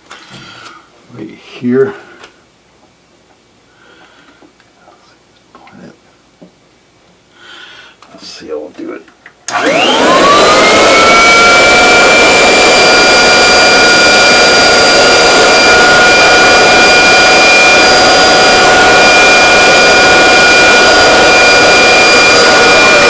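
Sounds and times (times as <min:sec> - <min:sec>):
vacuum cleaner running: 0:09.5 - 0:23.0.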